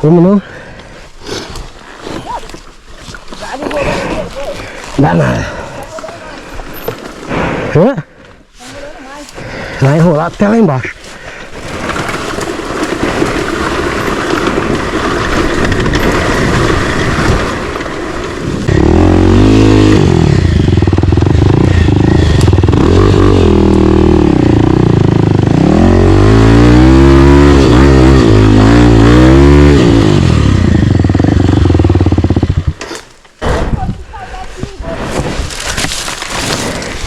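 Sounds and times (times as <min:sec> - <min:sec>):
motorcycle engine revving: 0:12.9 - 0:32.8.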